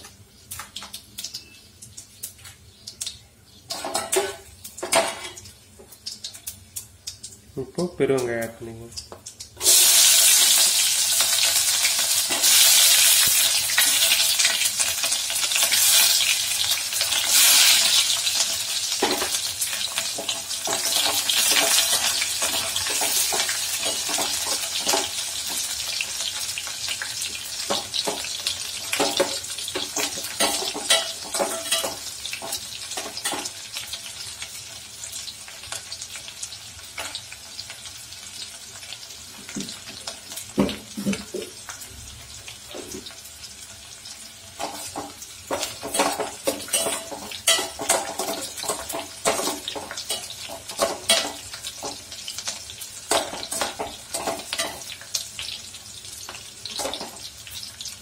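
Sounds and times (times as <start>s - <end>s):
onions sizzling in oil: 0.0s - 58.0s.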